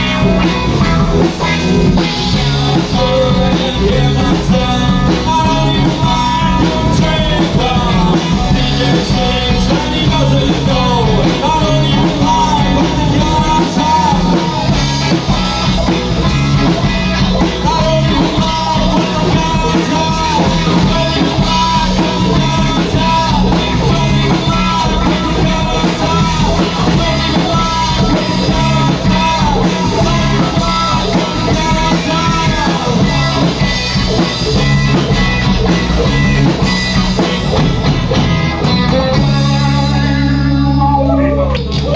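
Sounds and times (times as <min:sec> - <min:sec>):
rock music with guitar and singing: 0:00.0 - 0:41.9.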